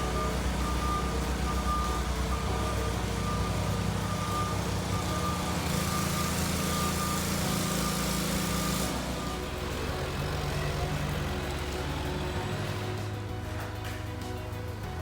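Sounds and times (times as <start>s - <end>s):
high electronic beeps: 0.0s - 9.5s
machine motor running: 0.0s - 15.0s.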